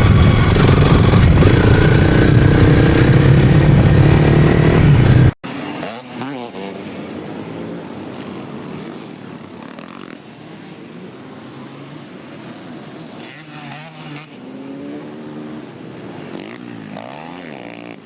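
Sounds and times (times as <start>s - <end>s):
motorcycle engine revving: 0.0s - 7.8s, 12.5s - 18.0s.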